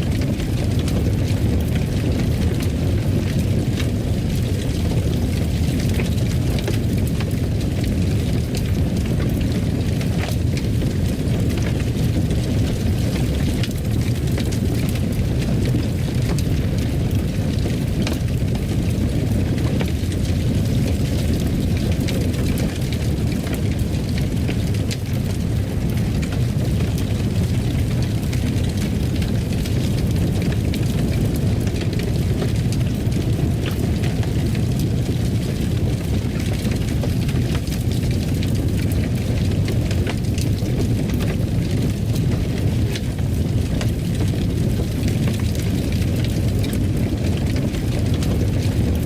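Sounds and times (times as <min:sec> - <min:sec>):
fire crackling: 0:00.0 - 0:49.0
fire rumbling: 0:00.0 - 0:49.0.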